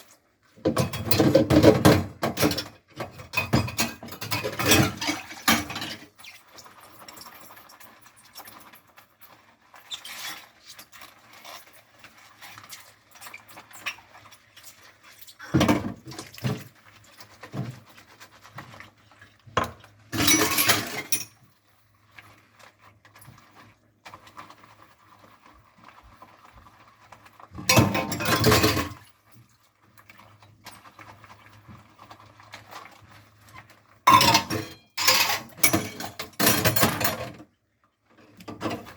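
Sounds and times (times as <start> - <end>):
running tap water: 0.0 - 37.4
scrubbing dishes: 0.0 - 37.5
dishes clinking: 19.6 - 21.3, 34.1 - 37.3.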